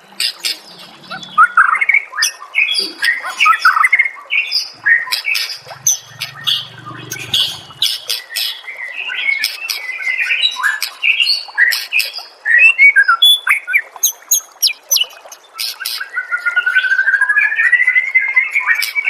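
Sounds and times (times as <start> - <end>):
rising bird trill: 4.6 - 8.0
bird singing whistled phrases: 12.5 - 15.2.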